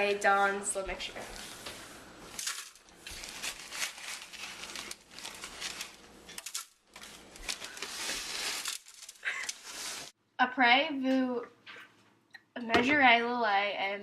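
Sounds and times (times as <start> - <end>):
plastic bag crinkling: 1.2 - 10.1.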